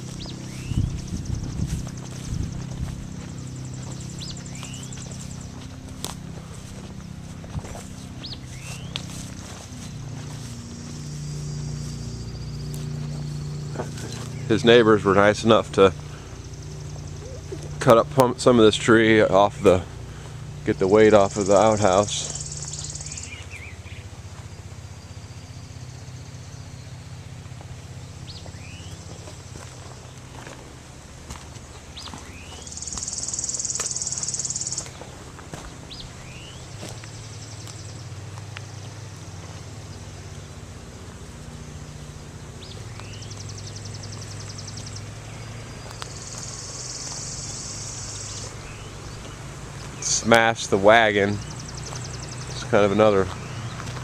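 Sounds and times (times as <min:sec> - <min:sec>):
birds chirping: 0:00.0 - 0:54.0
low mechanical drone: 0:00.0 - 0:54.0
steady low hum: 0:00.0 - 0:54.0.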